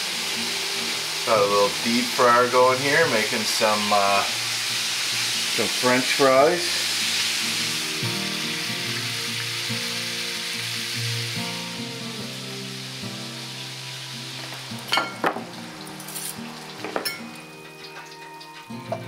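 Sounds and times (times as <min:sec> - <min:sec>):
food sizzling in hot oil: 0:00.0 - 0:19.0
soft background music: 0:00.0 - 0:19.0
utensils clinking: 0:14.9 - 0:19.0.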